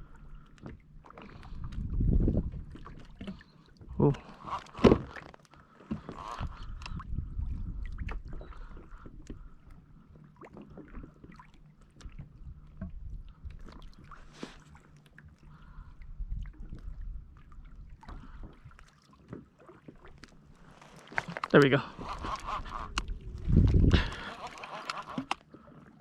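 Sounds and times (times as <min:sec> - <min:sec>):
water lapping against kayak hull: 0:00.0 - 0:26.0
gear knocks and clicks: 0:21.0 - 0:25.4
low rumble: 0:22.6 - 0:24.2.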